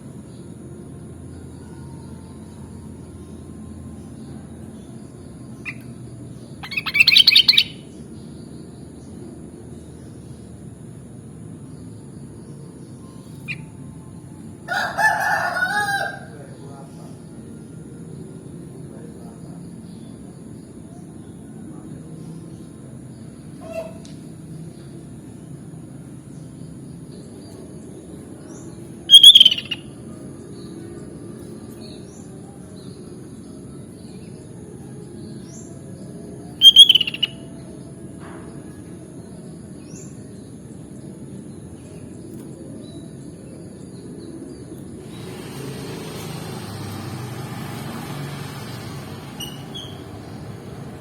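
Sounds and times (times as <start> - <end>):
bulbul calling: 6.6 - 7.8, 29.1 - 30.0, 36.6 - 37.5
faint chirps: 28.5 - 35.5, 36.1 - 38.0
hiss: 45.1 - 49.2.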